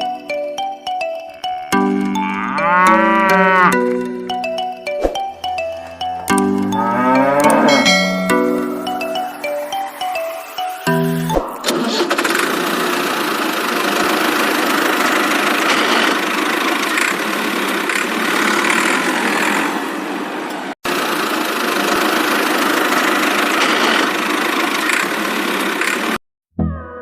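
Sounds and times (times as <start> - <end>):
mini tractor motor running: 11.7 - 19.8, 20.9 - 26.2.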